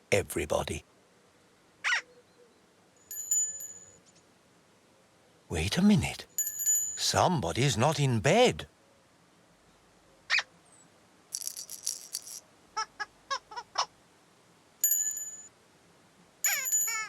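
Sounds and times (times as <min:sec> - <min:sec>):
bell-like chimes: 0:03.1 - 0:04.0, 0:14.8 - 0:15.5, 0:16.5 - 0:17.0.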